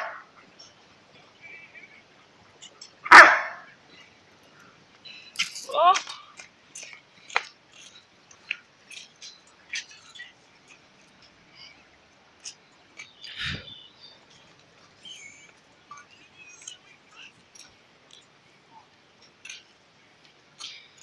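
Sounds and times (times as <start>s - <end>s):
small birds chirping: 3.9s - 18.6s.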